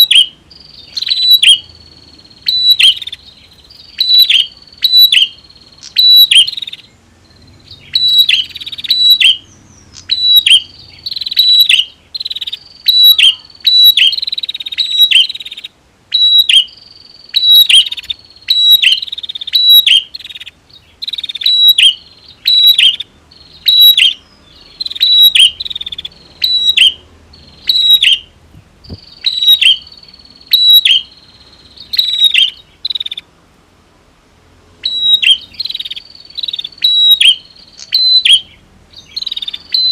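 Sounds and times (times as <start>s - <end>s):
bird clicking chirps: 3.8s - 6.8s, 7.9s - 15.6s, 34.8s - 38.5s.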